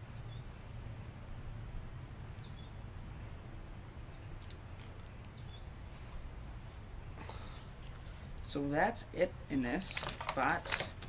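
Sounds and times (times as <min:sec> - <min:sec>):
small bird chirping: 0:00.0 - 0:00.5, 0:02.4 - 0:02.8, 0:04.0 - 0:04.5, 0:05.1 - 0:05.7
steady low rumble: 0:00.0 - 0:09.8.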